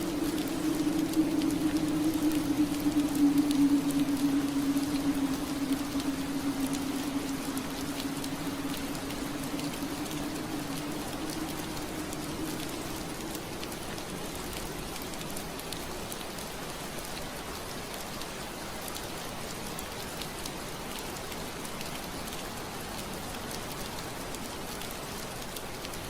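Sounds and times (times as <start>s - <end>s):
low hum: 0.0s - 15.6s
rain on window glass: 0.0s - 26.0s.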